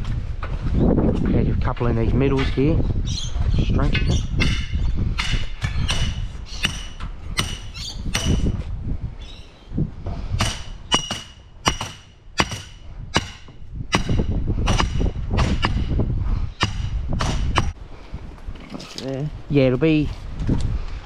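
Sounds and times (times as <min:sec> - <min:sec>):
hammer striking stakes: 0:04.0 - 0:08.6, 0:10.4 - 0:17.8.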